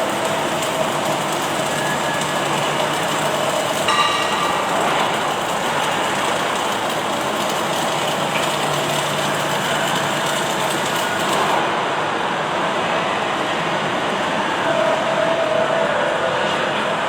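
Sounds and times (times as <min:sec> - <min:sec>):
industrial machine noise: 0:00.0 - 0:17.0.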